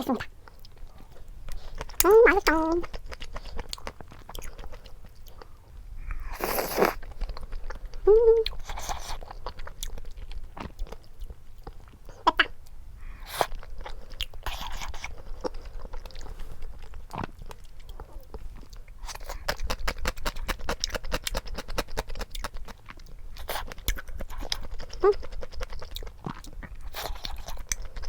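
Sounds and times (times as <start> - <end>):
crunchy biting and chewing: 13.2 - 28.0.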